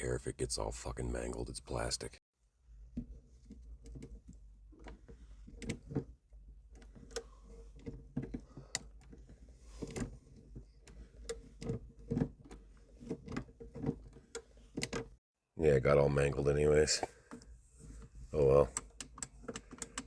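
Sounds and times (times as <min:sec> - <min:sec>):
plastic clicking and creaking: 0:18.6 - 0:20.0.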